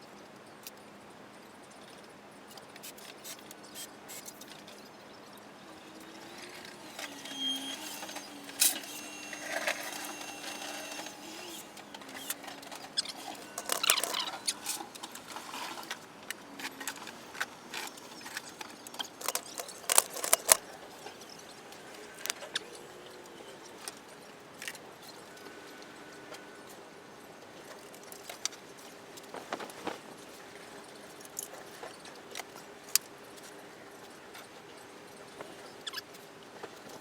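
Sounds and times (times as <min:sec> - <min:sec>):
faint wavering hum: 0:04.4 - 0:26.7.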